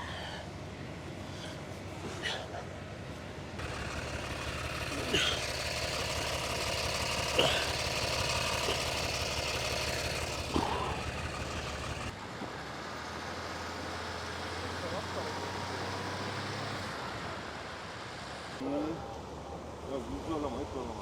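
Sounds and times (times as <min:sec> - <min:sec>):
car engine running: 0:03.6 - 0:12.2.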